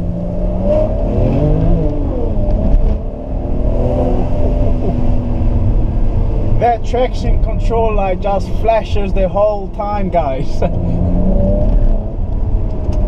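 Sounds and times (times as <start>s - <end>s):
car engine under throttle: 0.0s - 13.0s.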